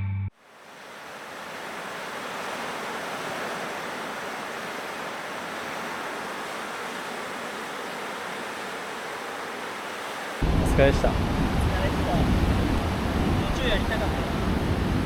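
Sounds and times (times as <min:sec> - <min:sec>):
ocean surf roar: 0:00.4 - 0:15.0.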